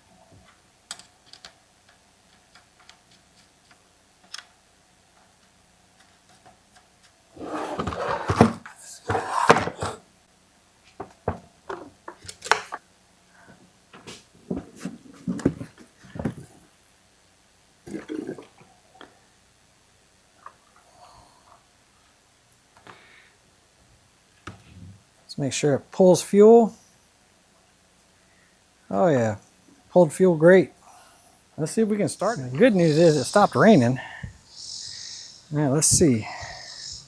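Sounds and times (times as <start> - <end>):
clicks and knocks of tools: 0.5 - 4.6
rustling and clattering: 13.9 - 16.7.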